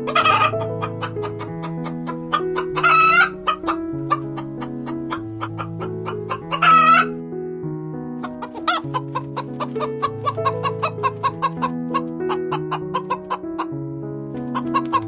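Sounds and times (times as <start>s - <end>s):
chicken calling: 0.0s - 7.2s, 8.2s - 13.7s, 14.4s - 15.0s
background music: 0.0s - 15.0s.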